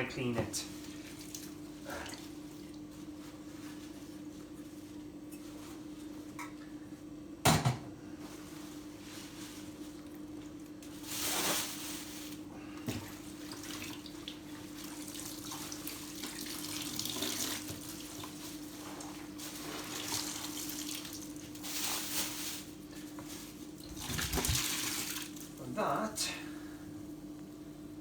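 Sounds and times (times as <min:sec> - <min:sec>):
water splashing and trickling: 0:23.8 - 0:25.6.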